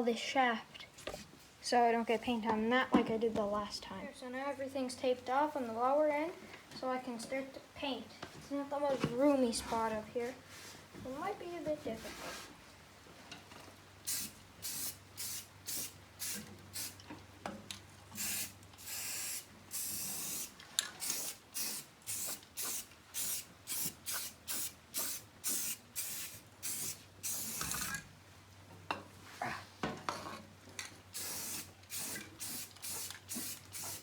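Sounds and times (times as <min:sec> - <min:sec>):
spray can hissing: 0:14.1 - 0:17.0, 0:18.2 - 0:28.0, 0:31.1 - 0:34.0.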